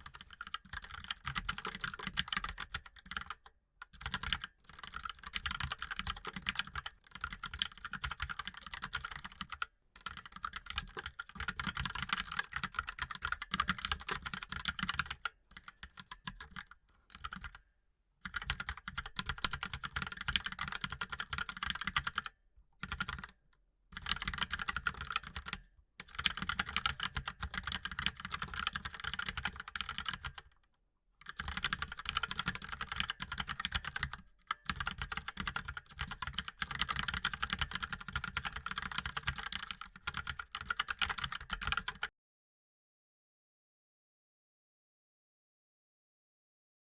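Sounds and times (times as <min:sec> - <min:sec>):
mechanical keyboard typing: 0:00.0 - 0:17.6, 0:18.3 - 0:23.4, 0:24.0 - 0:30.5, 0:31.2 - 0:42.1.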